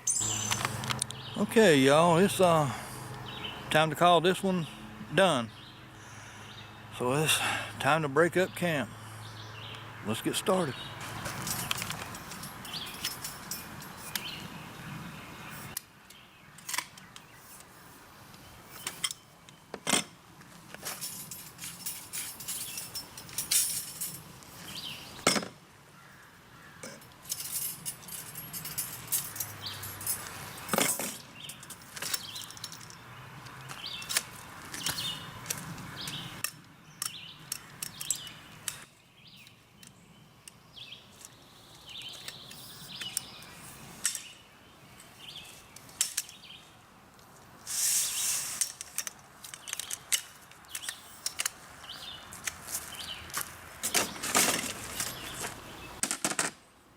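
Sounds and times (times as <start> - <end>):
gear clinking and knocking: 11.2 - 14.3.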